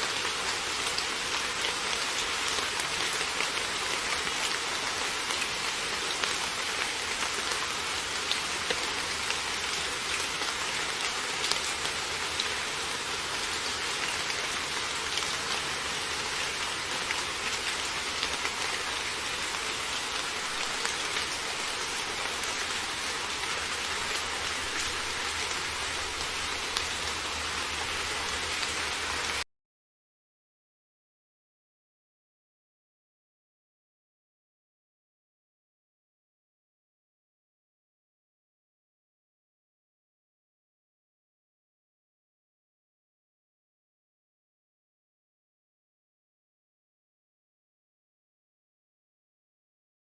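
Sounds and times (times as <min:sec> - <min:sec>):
heavy rain on a surface: 0:00.0 - 0:29.4.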